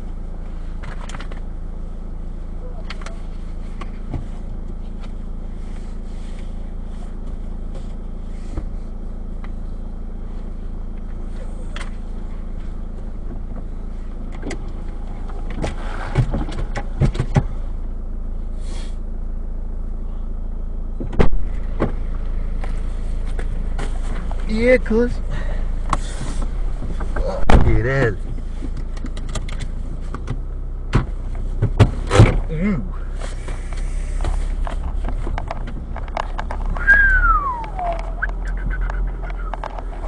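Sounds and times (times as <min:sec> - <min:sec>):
car engine drone inside cabin: 0:00.0 - 0:40.0
loud thump: 0:21.0 - 0:22.0, 0:26.8 - 0:27.9.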